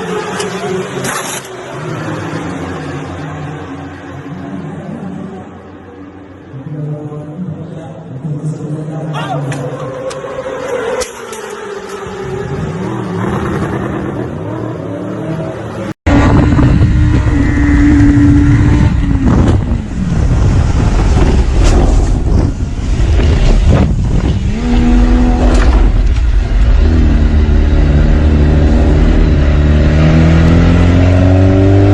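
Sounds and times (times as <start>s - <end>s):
vehicle engine revving: 10.1s - 31.9s.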